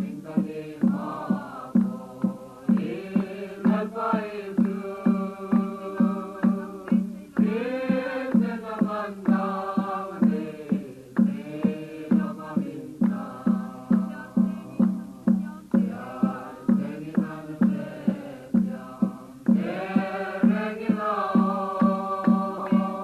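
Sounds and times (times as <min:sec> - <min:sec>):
choir singing: 0:00.0 - 0:23.0
steady drum beat: 0:00.0 - 0:23.0.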